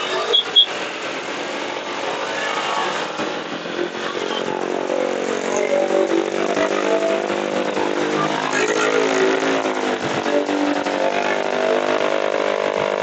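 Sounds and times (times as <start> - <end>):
short high beeps: 0.0 - 0.7
engine revving: 0.0 - 13.0
motorcycle engine and road noise: 0.0 - 13.0.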